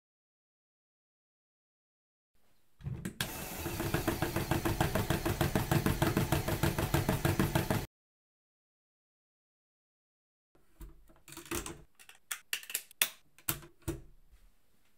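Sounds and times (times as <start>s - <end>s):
motor hum: 3.2s - 7.9s.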